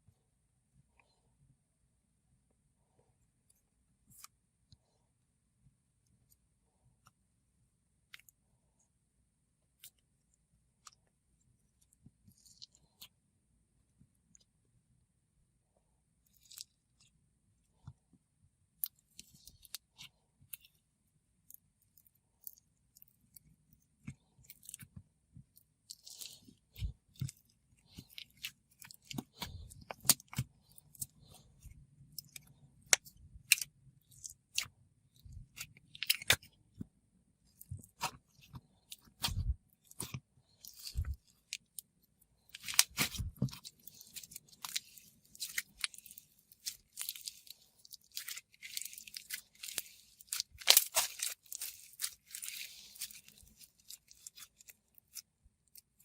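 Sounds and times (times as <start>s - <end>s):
slime squished by hand crackling: 42.5s - 55.2s.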